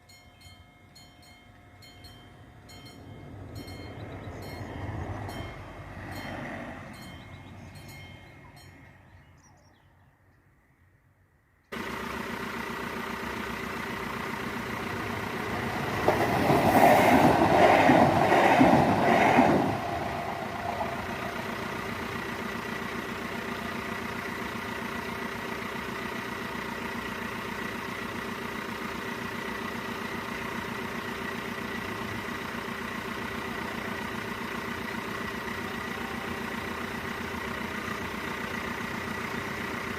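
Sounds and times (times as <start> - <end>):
crossing bell striking: 0.0 - 9.1
train passing: 0.1 - 9.2, 14.6 - 24.2
pulsing rush of passing train: 1.8 - 9.2, 14.6 - 23.6.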